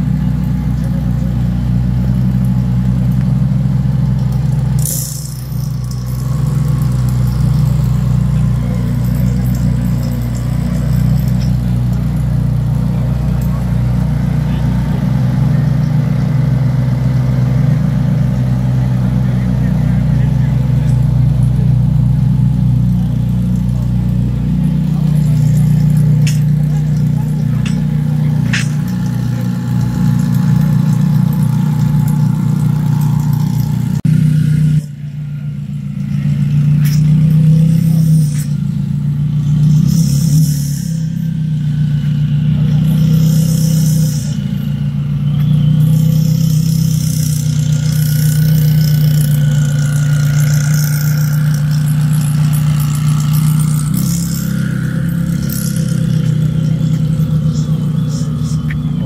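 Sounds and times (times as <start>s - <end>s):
car engine running at low revs: 0.0s - 59.0s.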